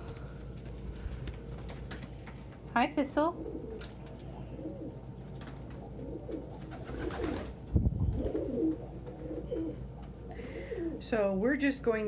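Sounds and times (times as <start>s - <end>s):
pigeons cooing: 3.3s - 11.0s.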